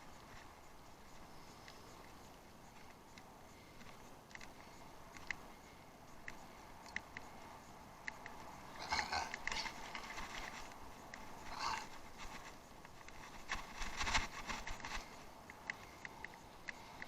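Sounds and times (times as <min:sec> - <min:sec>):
bicycle rattling over rough ground: 0:08.3 - 0:15.4.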